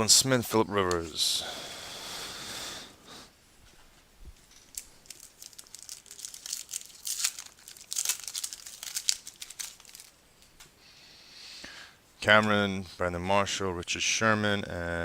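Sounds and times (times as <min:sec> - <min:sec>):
foil wrapper tearing and crinkling: 0:04.5 - 0:10.2.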